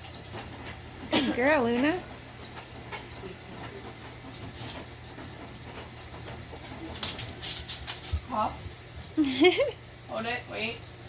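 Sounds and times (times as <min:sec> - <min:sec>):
low hum with faint hiss: 0:06.5 - 0:11.0.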